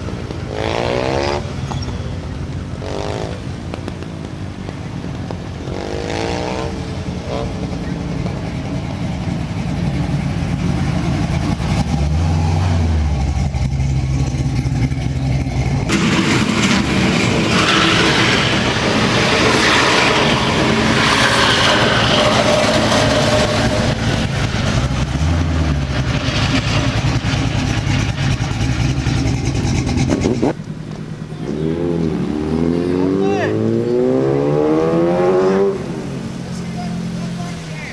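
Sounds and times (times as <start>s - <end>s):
car engine revving: 0.0s - 37.9s
loud rush of noise: 15.8s - 28.5s.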